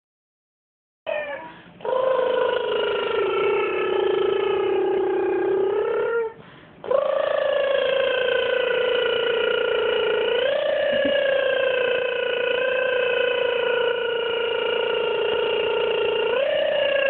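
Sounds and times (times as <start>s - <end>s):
woman imitating airplane motor: 1.1s - 17.0s
woman breathing: 6.4s - 6.8s.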